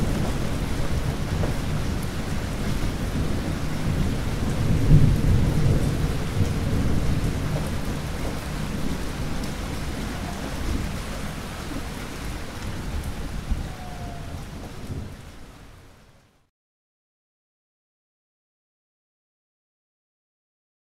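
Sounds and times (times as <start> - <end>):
low thunder rumble: 0.0 - 15.9
heavy rain: 0.0 - 16.5.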